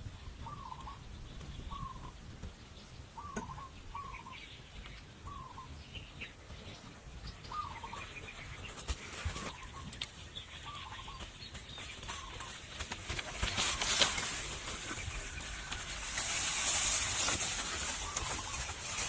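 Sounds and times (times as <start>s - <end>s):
short wavering bird calls: 0.2s - 2.2s, 3.1s - 6.4s, 7.4s - 12.6s, 17.2s - 19.0s.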